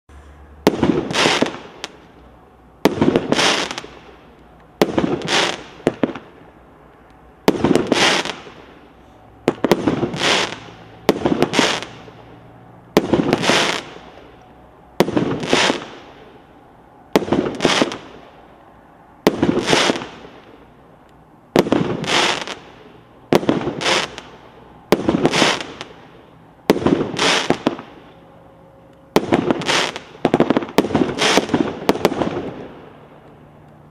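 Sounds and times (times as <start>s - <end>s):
firework crackling bursts: 0.2s - 2.2s, 2.8s - 6.4s, 7.4s - 12.4s, 13.0s - 14.3s, 15.0s - 16.3s, 17.2s - 18.3s, 19.3s - 20.6s, 21.5s - 28.1s, 29.2s - 33.0s.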